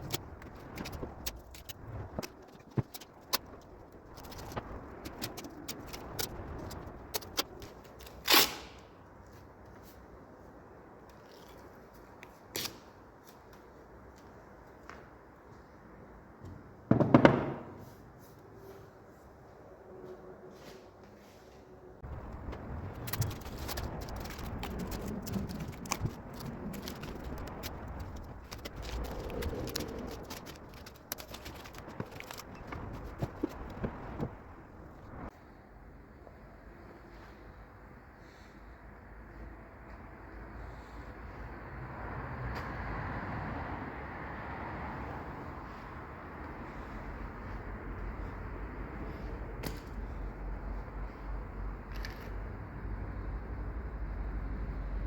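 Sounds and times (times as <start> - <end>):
rustling: 20.6 - 35.3.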